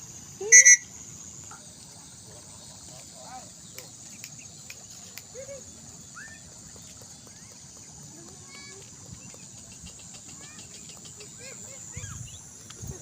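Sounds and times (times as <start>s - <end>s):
faint clicks: 3.7s - 5.4s.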